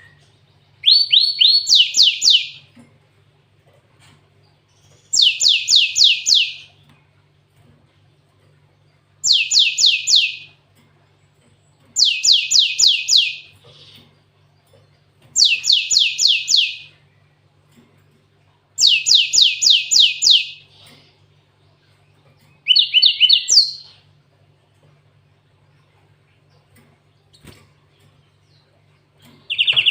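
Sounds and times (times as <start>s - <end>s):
bird singing: 0.0s - 2.7s, 4.6s - 6.8s, 8.8s - 10.6s, 11.8s - 17.5s, 18.8s - 21.0s, 21.8s - 24.1s, 24.8s - 29.9s.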